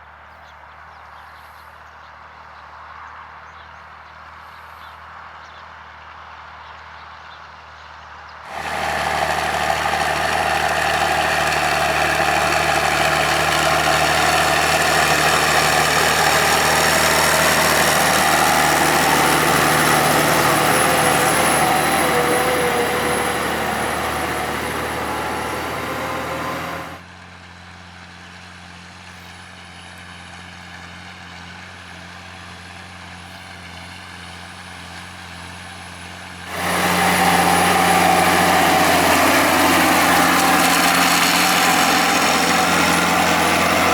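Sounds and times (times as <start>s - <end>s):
tractor engine running: 8.5s - 27.0s, 35.8s - 43.9s.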